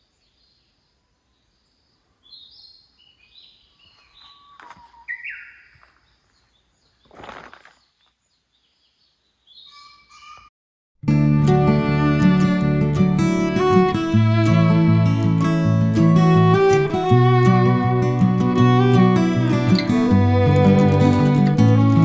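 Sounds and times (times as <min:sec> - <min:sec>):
wild birds chirping: 0:00.0 - 0:10.5.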